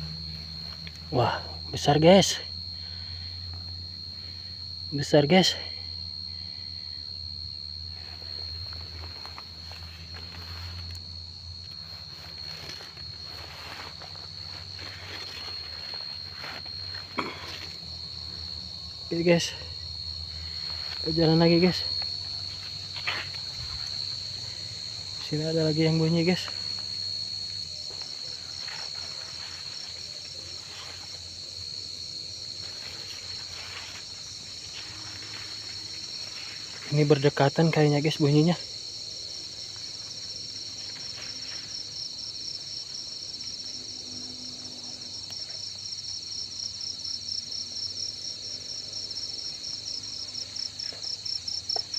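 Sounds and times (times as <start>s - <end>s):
cricket trilling: 0.0s - 51.9s
footsteps in grass: 7.9s - 18.6s, 20.3s - 25.4s, 26.2s - 37.4s, 38.8s - 42.8s
rustling in grass: 7.9s - 18.6s, 20.3s - 25.4s, 26.0s - 37.4s, 38.7s - 42.6s.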